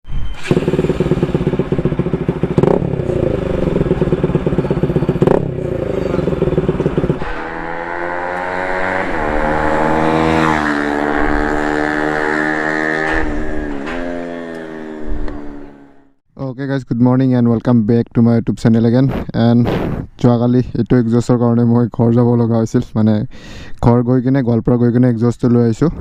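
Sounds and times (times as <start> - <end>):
motorcycle engine revving: 0.4 - 16.2.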